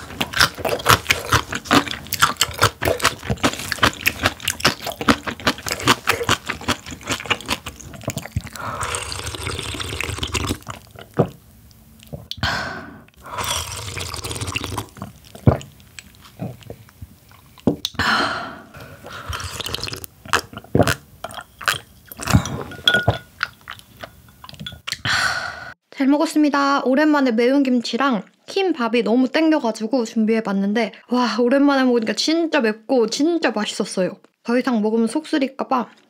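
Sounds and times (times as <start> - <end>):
wet chewing and mouth clicks: 0.0 - 12.5, 13.1 - 18.0, 18.8 - 25.1.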